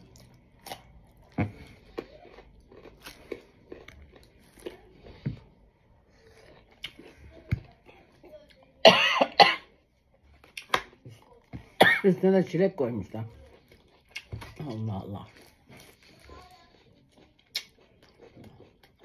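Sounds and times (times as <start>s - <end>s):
chewing and mouth sounds: 0.0s - 8.8s, 13.0s - 19.0s
loud coughs: 8.8s - 9.7s, 11.8s - 12.1s.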